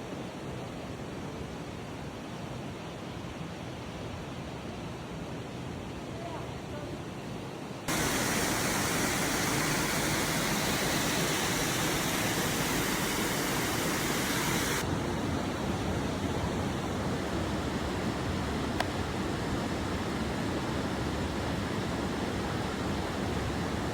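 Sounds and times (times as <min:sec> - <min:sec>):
fast water rushing: 0:07.9 - 0:23.9.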